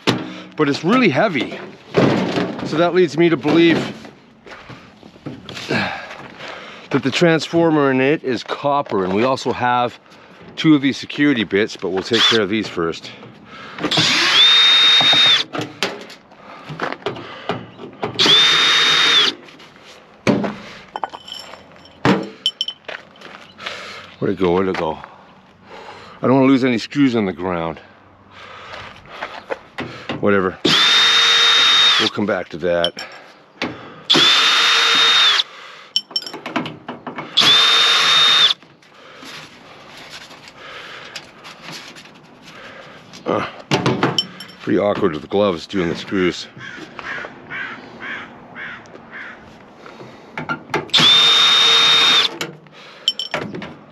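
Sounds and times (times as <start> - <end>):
power drill motor whine: 13.9 - 15.5, 18.2 - 19.4, 30.7 - 32.2, 34.1 - 35.5, 37.4 - 38.6, 50.9 - 52.3
handling clicks and rattles: 36.0 - 37.2.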